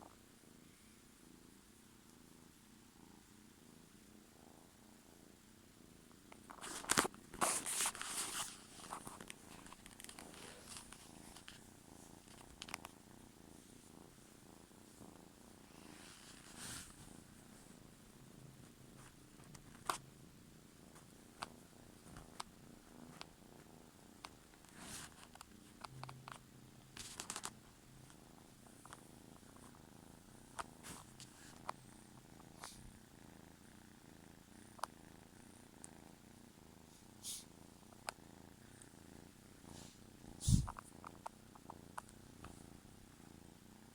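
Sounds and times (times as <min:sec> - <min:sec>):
kitten purring: 0:00.0 - 0:43.9
rustling: 0:06.4 - 0:17.6.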